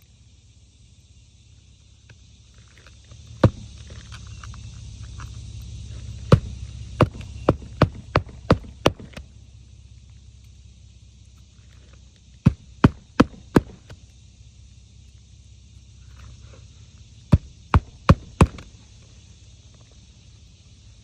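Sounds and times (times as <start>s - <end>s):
hammer striking roofing nails: 6.3s - 9.2s, 12.4s - 13.8s, 17.4s - 18.7s.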